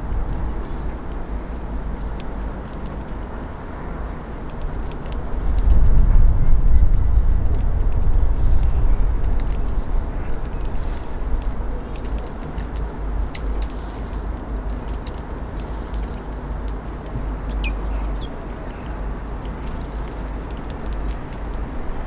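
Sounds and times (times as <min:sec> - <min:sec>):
steady low rumble: 0:04.4 - 0:22.0
small birds calling: 0:13.2 - 0:14.3, 0:14.9 - 0:16.4, 0:17.2 - 0:19.0.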